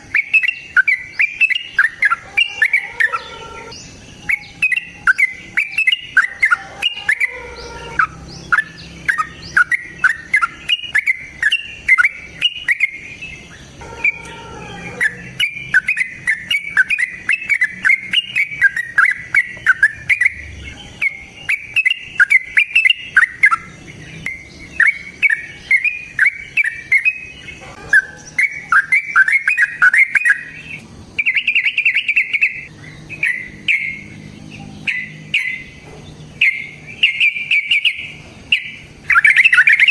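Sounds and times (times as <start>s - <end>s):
bird chattering high chirps: 0.0s - 39.9s.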